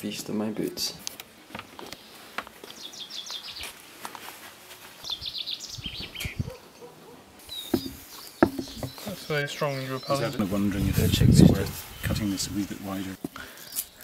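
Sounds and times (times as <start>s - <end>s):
small bird chirping: 1.9s - 3.7s, 5.0s - 10.5s.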